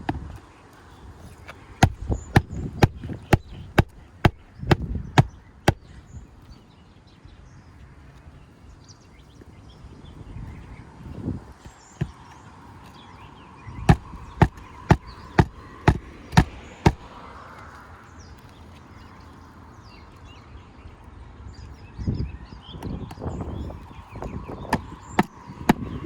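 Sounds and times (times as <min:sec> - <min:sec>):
faint birds chirping: 0:00.0 - 0:26.0
hammer striking nail: 0:01.8 - 0:05.9, 0:13.9 - 0:17.1, 0:24.7 - 0:26.0.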